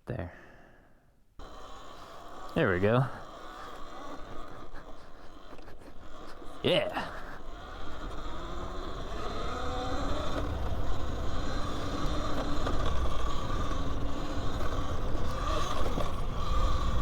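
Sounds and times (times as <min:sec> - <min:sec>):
electric motor whine: 0:01.4 - 0:17.0.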